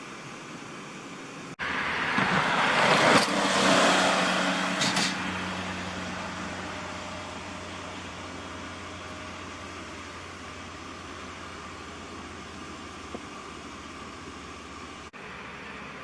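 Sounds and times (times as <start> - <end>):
truck driving past: 1.6 - 11.8.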